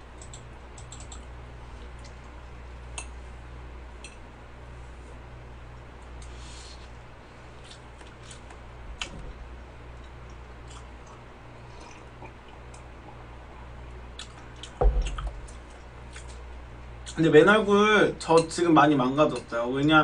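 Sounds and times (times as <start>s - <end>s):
person chewing: 7.6s - 9.1s, 9.9s - 13.2s, 14.1s - 16.4s
loud thump: 14.8s - 15.4s.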